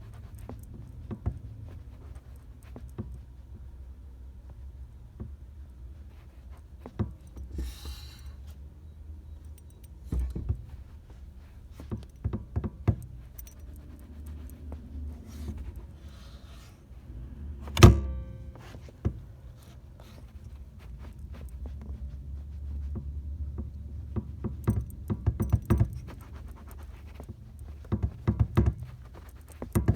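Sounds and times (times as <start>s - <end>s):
car pedal knocking: 11.8s - 13.5s, 22.9s - 29.9s
light jingling: 12.8s - 16.7s.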